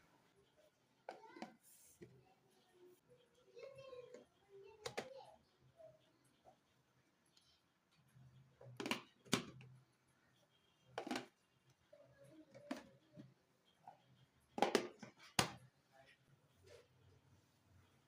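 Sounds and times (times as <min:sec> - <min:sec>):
objects knocking and clicking: 0:08.6 - 0:09.8, 0:10.9 - 0:11.4, 0:14.5 - 0:15.7.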